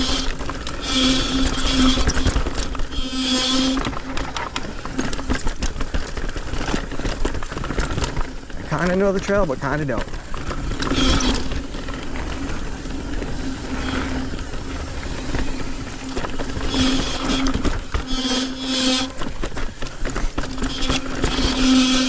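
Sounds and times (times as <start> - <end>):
bike tyres rumbling over rocks: 0.0 - 22.0
scraping bursts: 0.0 - 22.0
steady buzz: 9.3 - 22.0
wind noise on microphone: 9.6 - 22.0.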